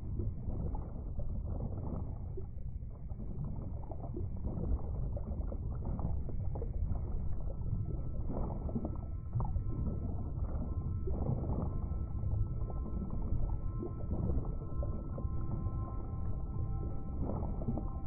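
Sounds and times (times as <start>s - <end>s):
underwater low rumble: 0.0s - 18.0s
faint steady high tone: 7.7s - 18.0s.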